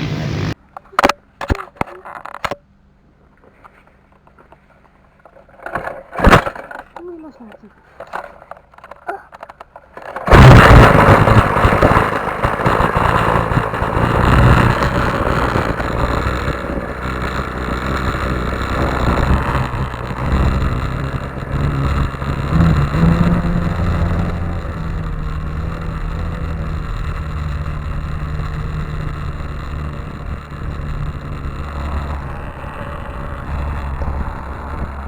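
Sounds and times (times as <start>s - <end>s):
motocross bike engine running unevenly: 0.0s - 0.6s, 10.1s - 35.0s.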